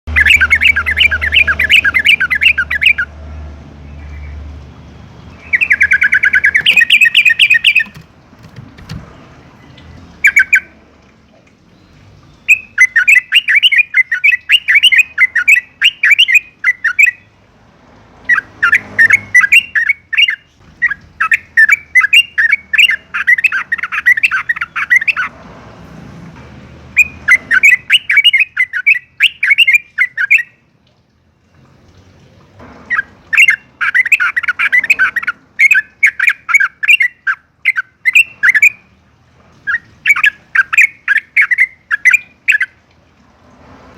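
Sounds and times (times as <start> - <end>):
bird chattering song: 0.1 - 3.1, 5.3 - 10.7, 11.8 - 17.3, 18.3 - 25.3, 27.0 - 30.6, 32.9 - 38.9, 39.6 - 42.8.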